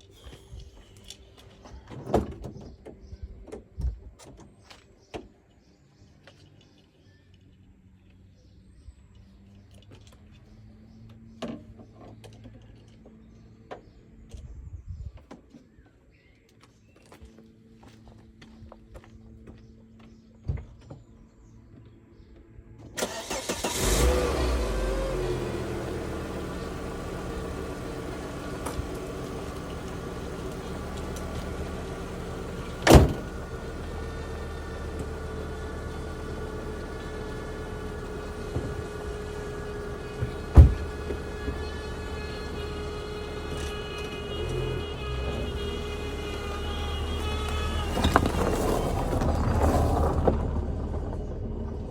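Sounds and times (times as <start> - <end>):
car engine idling: 23.0 - 51.9
low thumps: 39.8 - 41.7.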